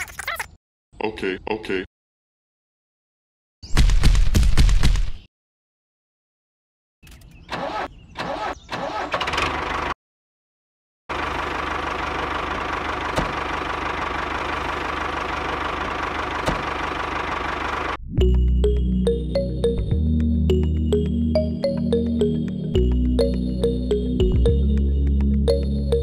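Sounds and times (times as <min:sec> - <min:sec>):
engine idling with whine: 0:11.1 - 0:18.0.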